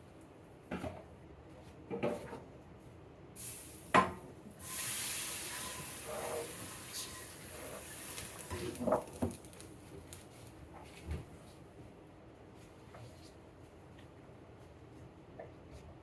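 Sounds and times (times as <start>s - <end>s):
tap water running: 3.4s - 9.6s.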